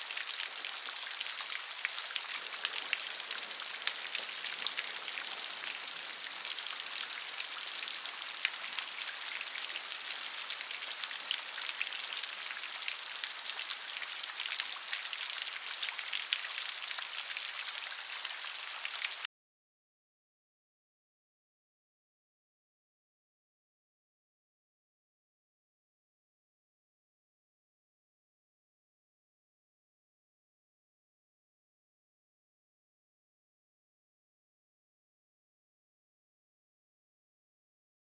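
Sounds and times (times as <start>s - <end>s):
steady rain falling: 0.0s - 19.3s.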